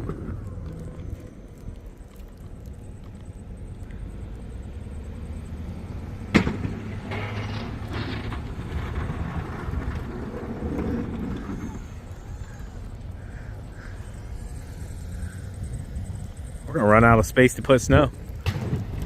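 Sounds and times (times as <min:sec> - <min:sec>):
vehicle engine running: 0:00.0 - 0:19.0
sharp bang: 0:06.3 - 0:07.0.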